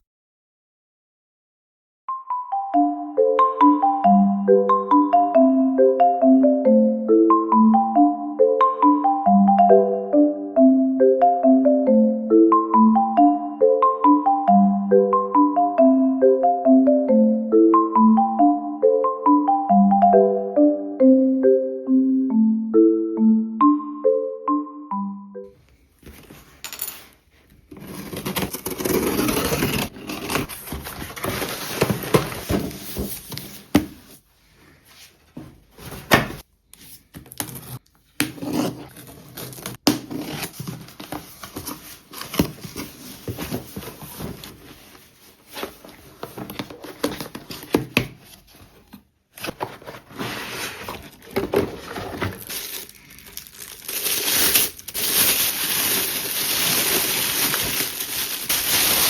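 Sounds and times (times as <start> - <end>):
material crinkling and rustling: 26.0 - 34.1, 38.8 - 59.0.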